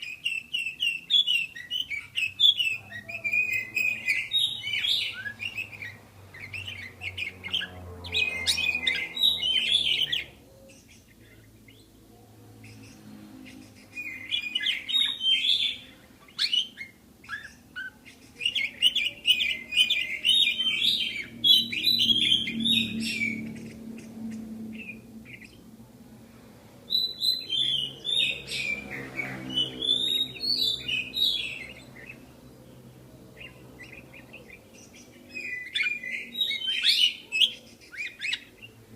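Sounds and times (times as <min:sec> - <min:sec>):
budgerigars chirping and warbling: 0:00.0 - 0:25.7, 0:26.9 - 0:38.9.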